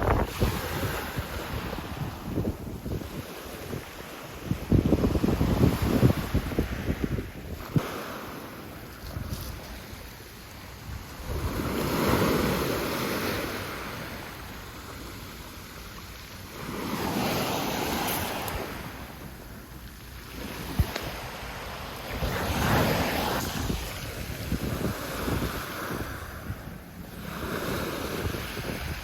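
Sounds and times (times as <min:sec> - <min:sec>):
wind on microphone: 0:00.0 - 0:08.0, 0:09.0 - 0:14.4, 0:20.3 - 0:29.0
sea waves washing on shore: 0:00.0 - 0:29.0.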